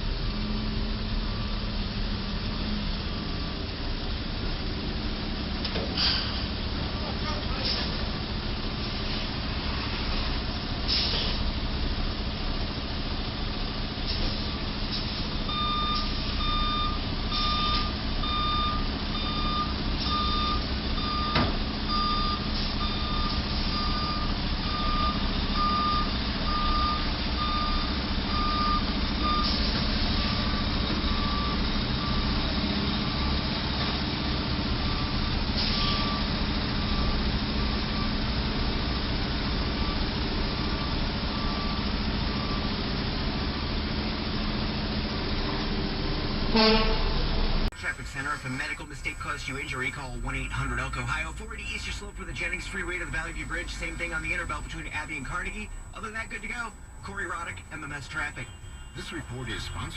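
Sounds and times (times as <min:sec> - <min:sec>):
road noise: 0:00.0 - 0:59.9
vehicle engine hum: 0:00.0 - 0:59.9
electronic warning beeps: 0:15.5 - 0:29.6, 0:30.2 - 0:32.4, 0:40.8 - 0:42.7.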